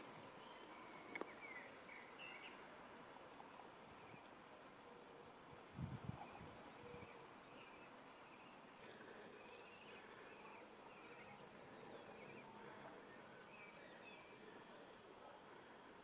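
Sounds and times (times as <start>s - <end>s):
small birds chirping: 9.3s - 14.4s.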